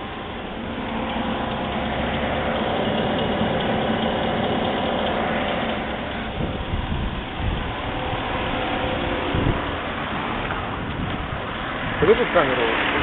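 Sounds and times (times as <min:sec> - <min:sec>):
engine idling: 0:00.0 - 0:13.0
uneven low bumps: 0:00.0 - 0:13.0.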